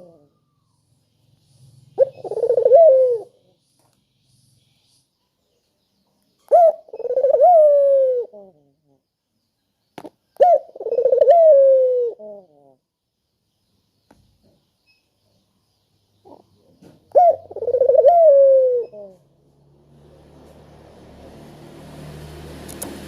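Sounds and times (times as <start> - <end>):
dove cooing: 0.0 - 0.4, 2.0 - 3.4, 6.5 - 9.0, 10.4 - 12.8, 16.2 - 19.3.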